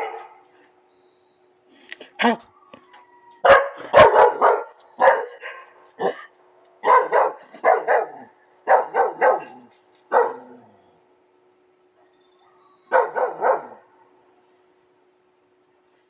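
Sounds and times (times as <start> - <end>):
dog barking: 0.0 - 0.4, 3.4 - 10.7, 12.0 - 14.1.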